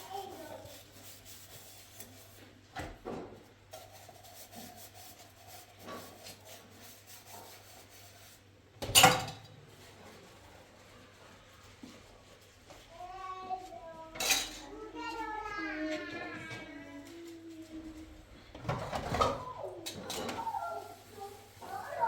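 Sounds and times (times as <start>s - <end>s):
objects rubbed and handled: 0.0s - 2.7s, 3.4s - 8.6s, 9.7s - 13.8s.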